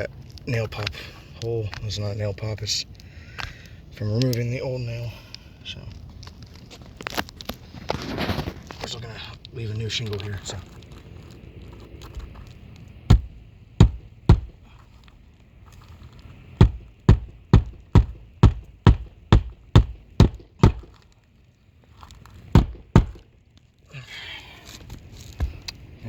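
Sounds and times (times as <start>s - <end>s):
hammer strikes on roof shingles: 13.1s - 14.8s, 16.6s - 21.0s, 22.5s - 23.2s.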